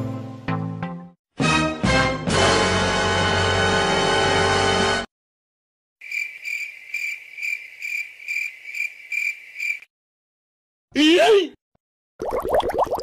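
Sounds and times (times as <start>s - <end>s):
crickets chirping: 6.0s - 9.9s.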